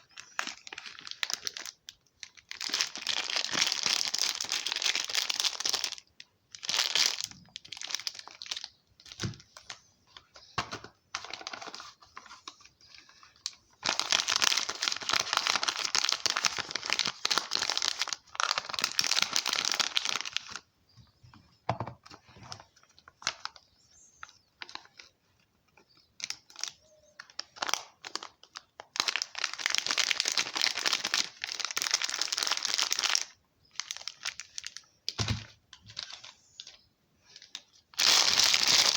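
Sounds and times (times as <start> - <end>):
wrappers crinkling and tearing: 0.0 - 9.8, 11.2 - 20.6, 26.2 - 34.9, 35.8 - 38.9.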